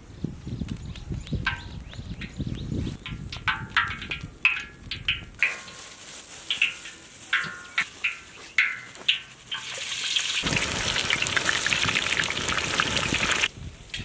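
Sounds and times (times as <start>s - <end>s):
potatoes sizzling in hot oil: 3.0s - 14.0s.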